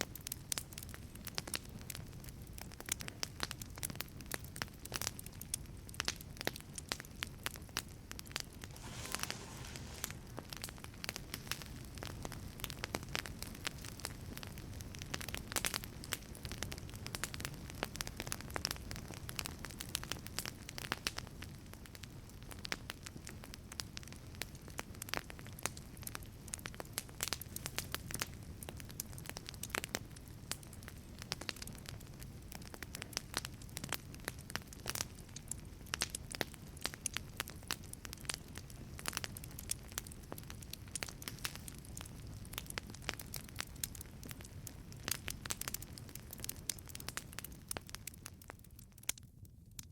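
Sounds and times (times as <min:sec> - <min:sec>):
burning wood popping and snapping: 0:02.7 - 0:17.8, 0:26.7 - 0:49.3
low rush of flame: 0:08.3 - 0:12.6.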